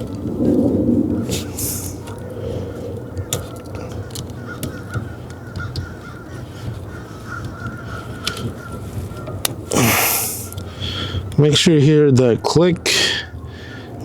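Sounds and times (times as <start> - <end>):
connectors being handled: 0.0 - 11.4
plastic connectors clicking: 3.1 - 10.7.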